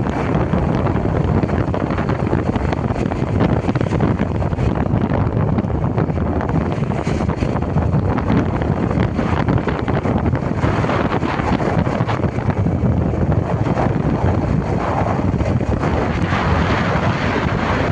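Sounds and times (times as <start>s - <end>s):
wind buffeting microphone: 0.0s - 17.9s.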